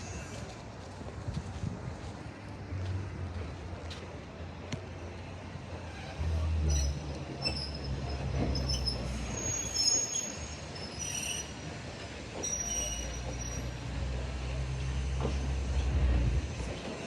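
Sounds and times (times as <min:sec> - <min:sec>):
train rumbling on rails: 0:00.0 - 0:17.0
high-pitched wheel squeals: 0:05.8 - 0:11.7, 0:12.4 - 0:13.8.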